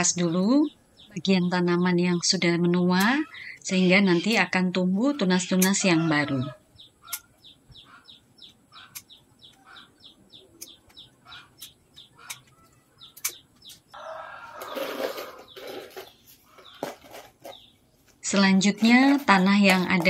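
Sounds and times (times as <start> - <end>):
small bird chirping: 0.0 - 20.0
rustling and scraping: 13.5 - 20.0.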